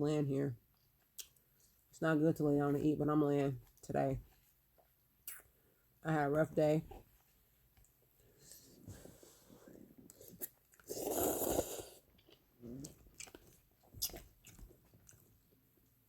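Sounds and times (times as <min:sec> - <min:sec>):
loud noodle slurp: 0:10.2 - 0:12.0
wet chewing and smacking: 0:12.0 - 0:15.6.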